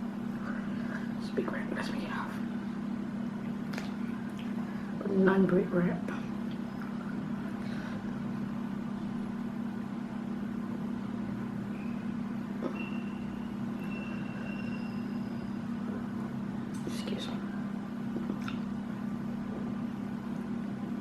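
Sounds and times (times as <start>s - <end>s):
steady low hum: 0.0s - 21.0s
faint high whistling tones: 11.5s - 16.3s.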